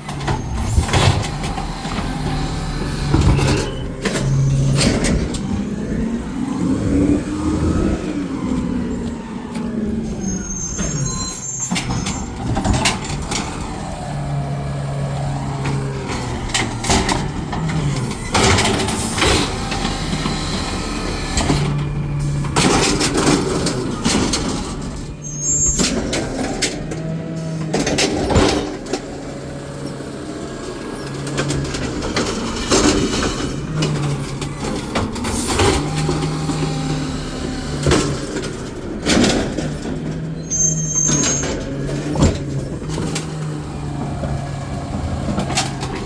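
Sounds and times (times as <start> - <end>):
garbage truck engine revving: 0.0 - 46.0
brief high squeals: 10.1 - 12.3, 25.2 - 26.0, 40.4 - 41.6.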